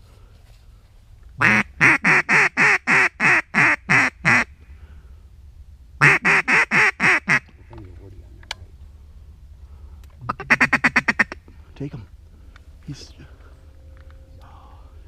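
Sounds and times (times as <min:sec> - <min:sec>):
duck call quacks: 0:01.4 - 0:04.5, 0:06.0 - 0:07.5, 0:10.3 - 0:11.4.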